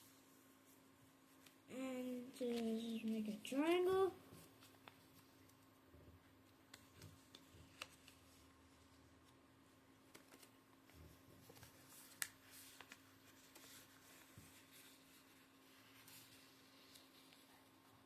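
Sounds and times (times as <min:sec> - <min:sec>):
paper rustling and creasing: 0:02.3 - 0:05.7, 0:06.6 - 0:09.4, 0:10.0 - 0:18.0.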